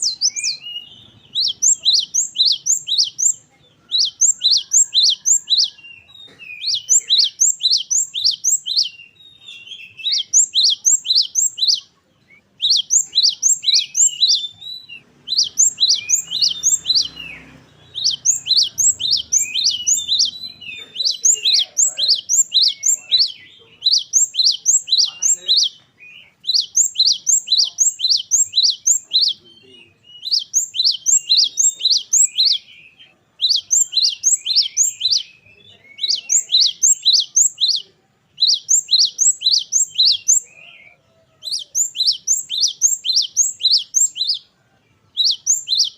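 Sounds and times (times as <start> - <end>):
bird singing sharp high notes: 0.0 - 40.9, 41.5 - 44.5, 45.1 - 45.9.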